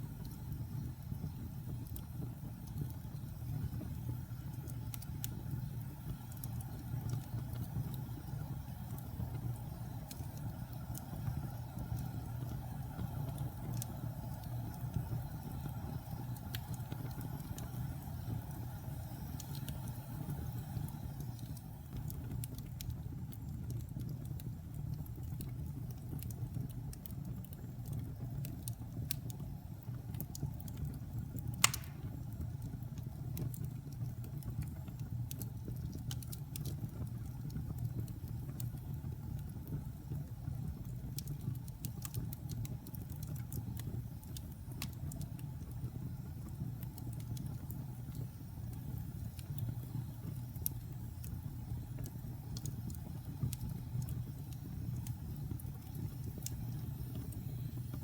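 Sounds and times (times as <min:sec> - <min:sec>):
fire crackling: 0:00.0 - 0:58.0
wood fire burning: 0:00.0 - 0:58.0
sharp pop of fire: 0:31.6 - 0:32.4.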